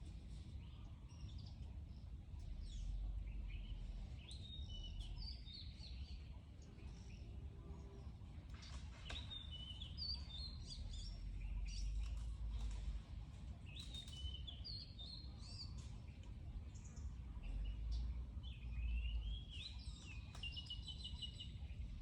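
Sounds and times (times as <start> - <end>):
low outdoor rumble: 0.0 - 22.0
small birds chirping: 0.0 - 22.0.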